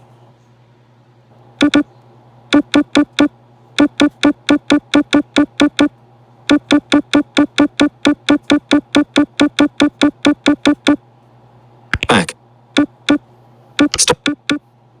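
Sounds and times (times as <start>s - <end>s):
faint low hum: 0.0s - 15.0s
repeated electronic keyboard note: 1.6s - 1.8s, 2.5s - 5.9s, 6.5s - 11.0s, 13.8s - 14.6s.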